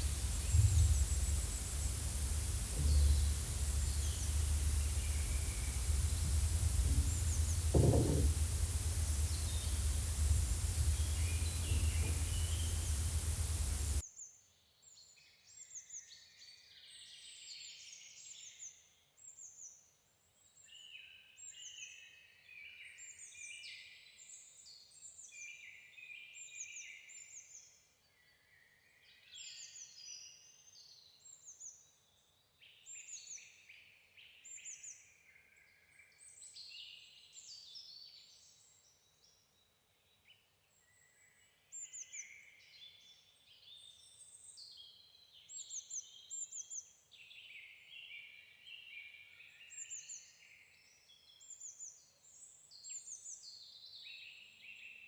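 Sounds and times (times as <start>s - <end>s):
loud steady rushing noise: 0.0s - 14.0s
songbirds singing: 0.0s - 14.0s.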